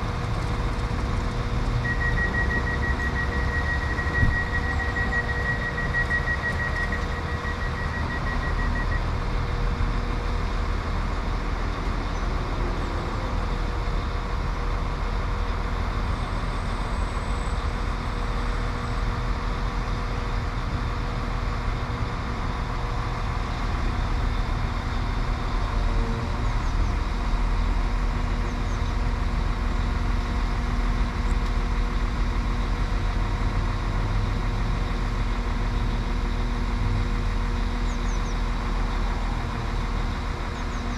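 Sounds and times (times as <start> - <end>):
diesel train engine running: 0.0 - 40.9
rapid pulsed beeping: 1.8 - 9.0.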